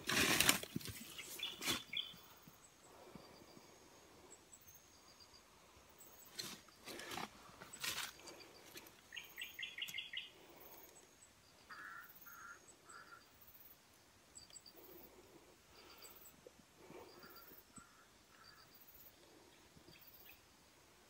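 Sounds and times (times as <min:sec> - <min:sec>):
birds chirping: 0:01.0 - 0:03.6, 0:06.0 - 0:13.7.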